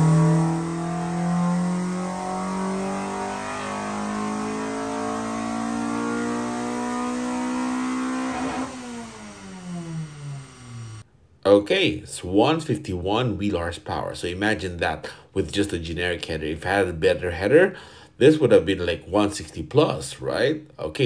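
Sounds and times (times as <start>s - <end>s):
car engine full-throttle pull: 0.0s - 11.0s
exhaust crackle: 0.0s - 11.0s.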